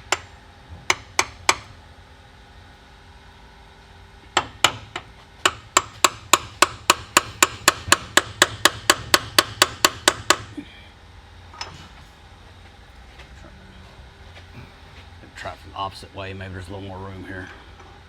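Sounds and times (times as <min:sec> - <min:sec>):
hammer tapping on metal: 0:04.4 - 0:10.5.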